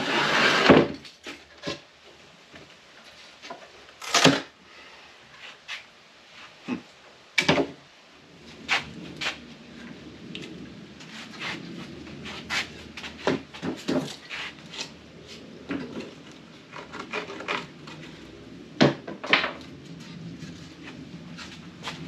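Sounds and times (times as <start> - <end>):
wooden slats knocking and scraping: 7.4 - 7.8, 11.0 - 15.0, 15.6 - 22.0.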